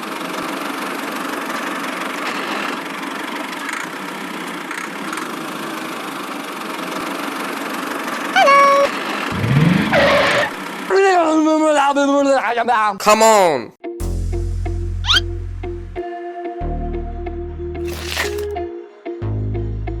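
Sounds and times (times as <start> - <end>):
small vehicle engine running: 0.0 - 11.4
horn-like held tone: 8.4 - 10.6
brief rising sound: 9.3 - 10.6.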